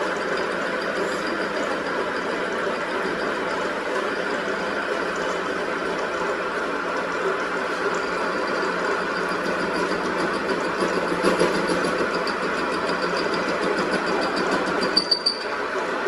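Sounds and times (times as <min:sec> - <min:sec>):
machine humming with rapid ticking: 0:00.0 - 0:16.0.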